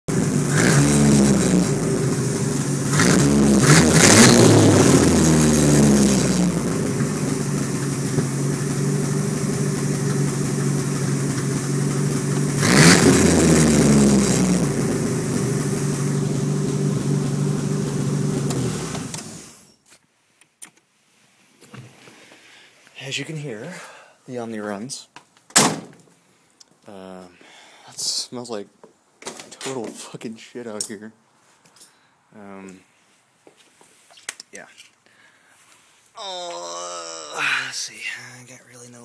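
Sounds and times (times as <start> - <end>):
car engine revving and idling: 0.1 - 19.5.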